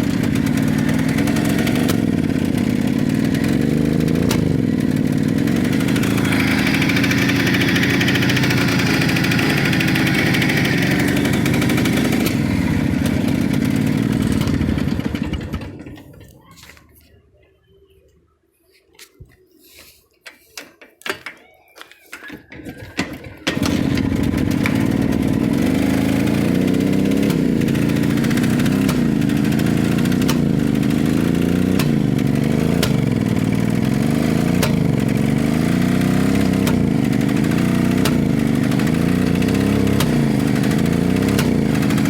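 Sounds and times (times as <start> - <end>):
engine running: 0.0 - 16.3, 23.2 - 42.0
engine popping: 0.0 - 16.5, 23.0 - 42.0.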